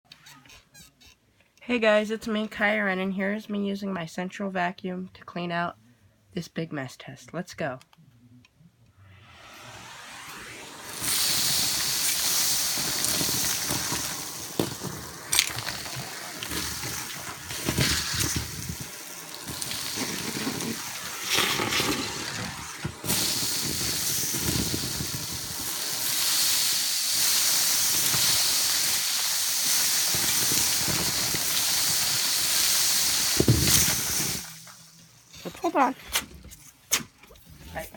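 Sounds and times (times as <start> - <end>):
vacuum cleaner running: 9.2 - 34.8
debris rattling in hose: 10.9 - 35.9.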